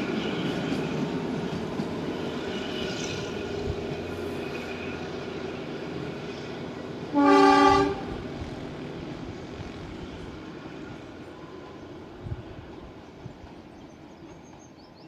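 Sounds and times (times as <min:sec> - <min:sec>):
diesel locomotive running: 0:00.0 - 0:15.0
train wheel noise: 0:00.0 - 0:15.0
train horn blast: 0:07.1 - 0:08.3.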